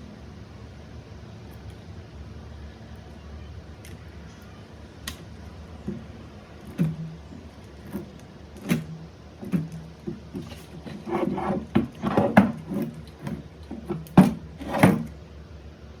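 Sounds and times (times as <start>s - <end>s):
scraping and rubbing: 5.8s - 15.1s.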